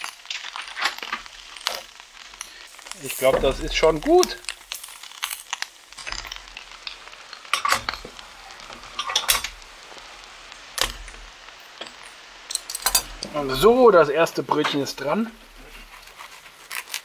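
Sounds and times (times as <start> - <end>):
sausages sizzling faintly: 0.0 - 17.0
metal utensils scraping frying pan: 6.0 - 9.6.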